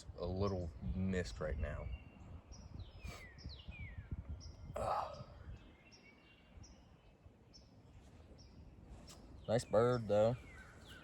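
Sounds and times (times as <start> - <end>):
low wind rumble: 0.0 - 11.0
songbirds chirping: 0.0 - 11.0.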